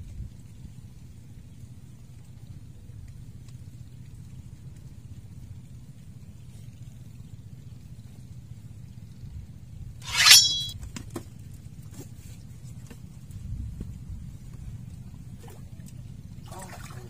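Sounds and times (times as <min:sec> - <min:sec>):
fishing pole swish: 0:10.0 - 0:10.7.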